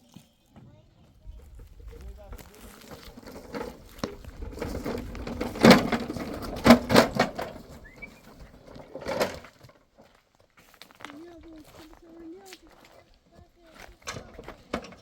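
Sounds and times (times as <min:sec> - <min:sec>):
faint clatter: 0:00.6 - 0:10.2, 0:12.9 - 0:15.0
knocks and thuds: 0:01.4 - 0:09.4.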